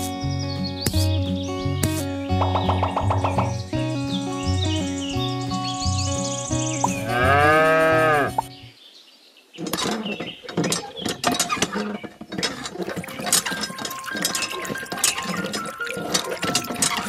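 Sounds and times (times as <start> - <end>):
background music: 0.0 - 8.7, 13.1 - 17.0
cow mooing: 7.0 - 8.4
hand water pump clicking and rattling: 9.6 - 17.0.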